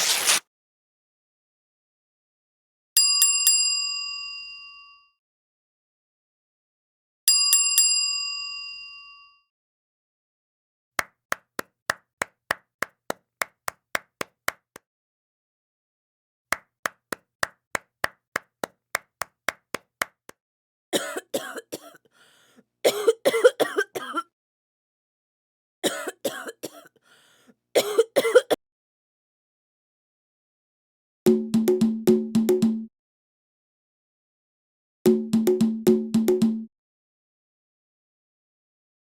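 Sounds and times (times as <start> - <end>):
sharp percussive taps: 31.3 - 32.9, 35.1 - 36.7.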